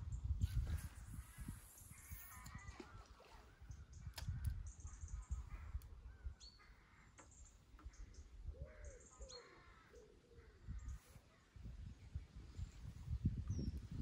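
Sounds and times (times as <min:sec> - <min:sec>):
waterside birds calling: 0:00.6 - 0:12.7
sharp click: 0:04.1 - 0:04.6.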